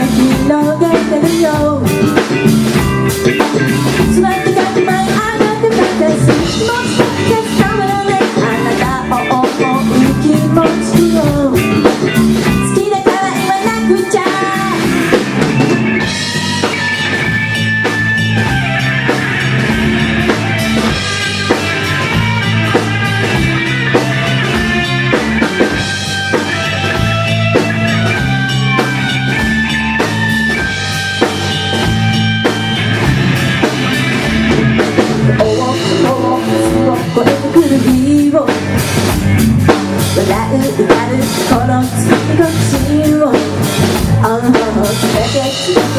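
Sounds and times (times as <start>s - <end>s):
person singing: 0.0s - 2.2s, 3.8s - 11.9s, 12.5s - 15.2s, 35.3s - 38.8s, 40.1s - 45.9s
live rock band playing: 0.0s - 45.9s.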